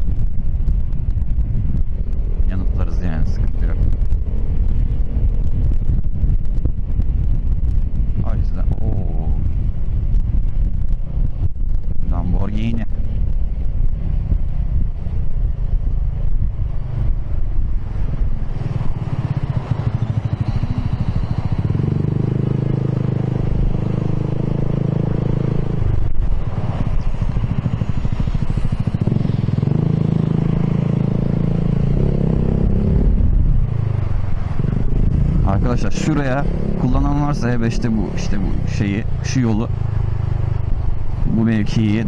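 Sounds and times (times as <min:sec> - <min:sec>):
scooter engine running: 0:18.9 - 0:24.5.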